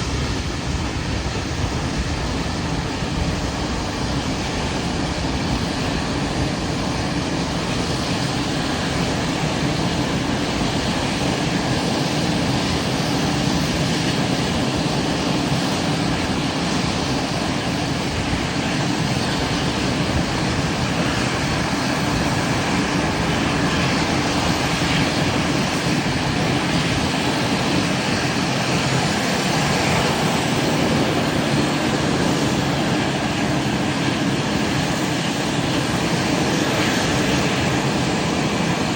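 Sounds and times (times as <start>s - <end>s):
jet engines rumbling: 0.0s - 38.9s.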